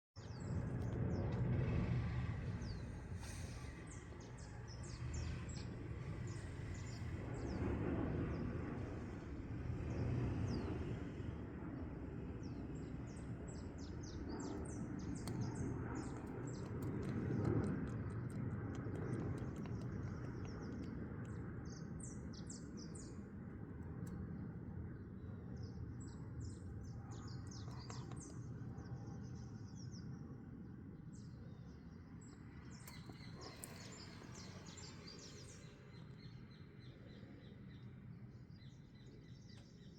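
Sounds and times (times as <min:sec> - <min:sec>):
small birds chirping: 0:00.2 - 0:09.2, 0:09.8 - 0:39.9
low rumble: 0:00.2 - 0:30.2.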